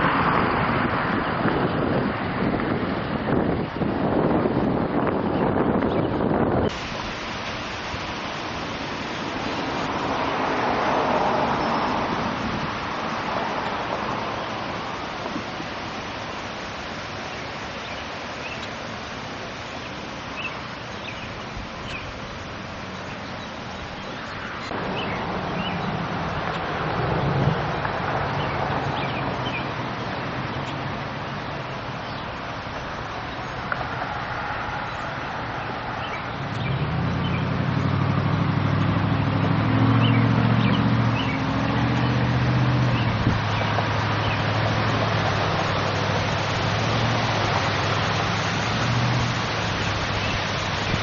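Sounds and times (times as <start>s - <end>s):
steady rushing noise: 0.0s - 51.0s
small birds chirping: 16.2s - 19.0s, 19.6s - 27.3s, 28.3s - 33.8s, 34.8s - 38.0s, 39.9s - 42.2s, 42.9s - 44.6s, 47.4s - 51.0s
vehicle engine running: 36.4s - 51.0s.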